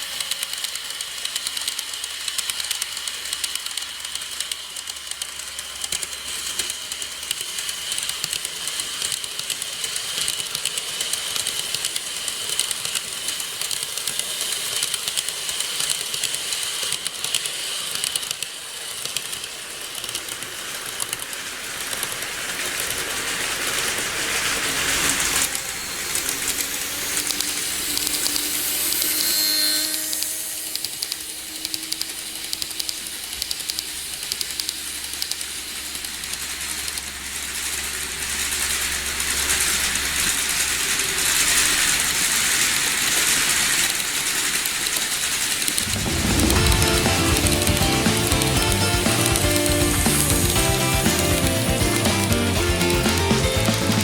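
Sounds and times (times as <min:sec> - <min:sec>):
fast clicking from rail joints: 0:00.0 - 0:54.0
model train motor whine: 0:00.0 - 0:54.0
rolling wheels hiss: 0:00.0 - 0:54.0.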